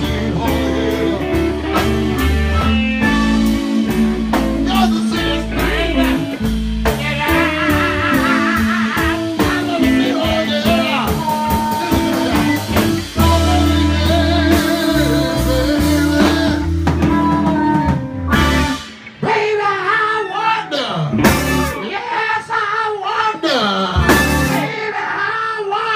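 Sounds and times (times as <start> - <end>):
steady drumbeat: 0.0 - 19.0, 21.2 - 21.8, 24.0 - 24.7
bass notes: 0.0 - 19.3, 21.1 - 21.8, 24.0 - 24.7
blues band playing: 0.0 - 25.0.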